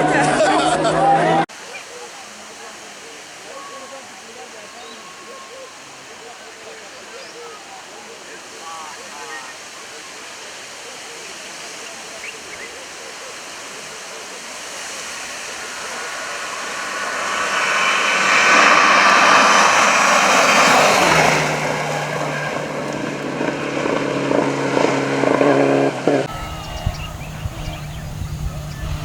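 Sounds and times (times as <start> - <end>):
road noise: 0.0 - 29.0
rally car engine: 14.6 - 29.0.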